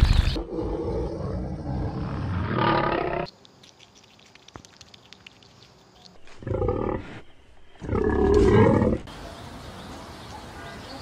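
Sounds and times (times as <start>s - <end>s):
lion growling: 0.3s - 3.3s, 6.4s - 7.2s, 7.8s - 9.1s
wet licking or chewing clicks: 3.3s - 6.2s.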